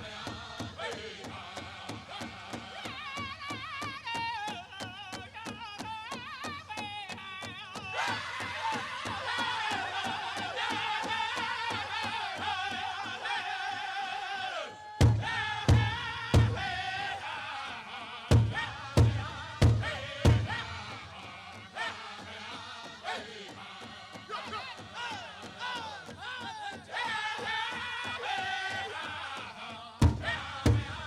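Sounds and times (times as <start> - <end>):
group singing in high voices: 0.0 - 5.4, 7.7 - 31.0
fast steady drumbeat: 0.0 - 13.4, 15.0 - 31.0
loud hard drum beats: 15.0 - 17.4, 18.3 - 22.5, 30.0 - 31.0.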